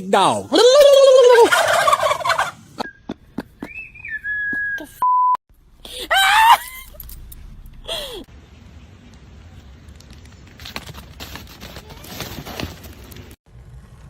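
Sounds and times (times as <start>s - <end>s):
turkey gobbling: 0.9s - 2.9s
whistle-like tone stepping down: 2.8s - 5.4s
short steady beep: 5.0s - 5.4s.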